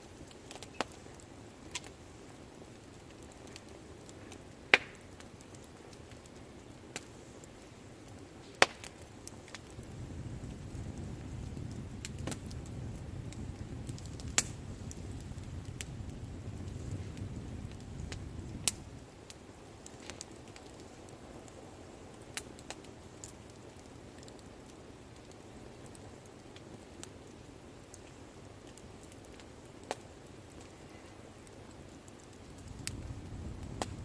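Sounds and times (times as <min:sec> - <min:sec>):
campfire crackling and popping: 0:00.0 - 0:34.0
low rumble: 0:32.6 - 0:34.0.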